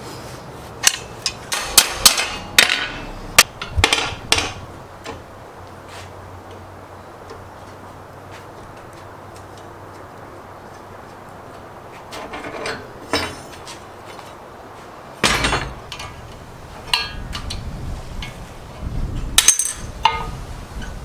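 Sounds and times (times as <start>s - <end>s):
metal parts clanking: 0.8s - 5.2s, 12.1s - 14.4s, 15.2s - 20.9s.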